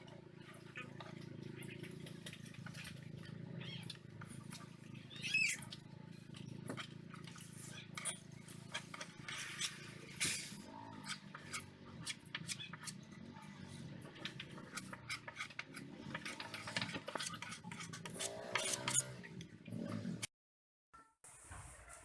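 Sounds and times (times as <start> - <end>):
hard objects clicking and clattering: 13.8 - 19.5.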